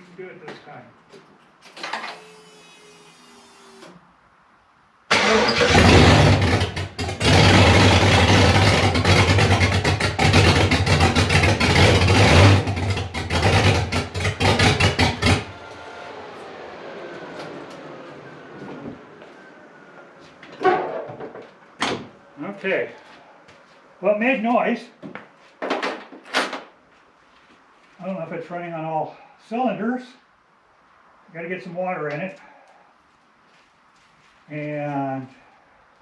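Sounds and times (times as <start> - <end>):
engine cranking: 5.1 - 18.4
engine running loud and uneven: 5.1 - 21.6.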